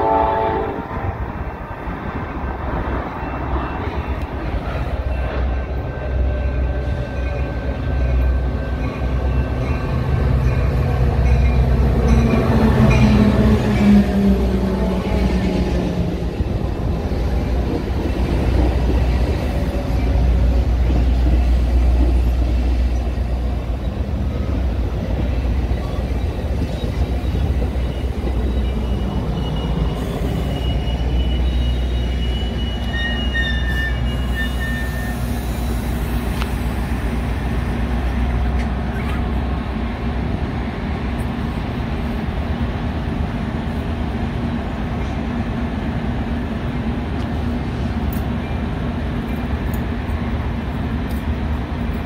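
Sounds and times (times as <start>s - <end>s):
train rumbling past: 0.0s - 52.0s
high wheel squeals: 25.8s - 36.0s.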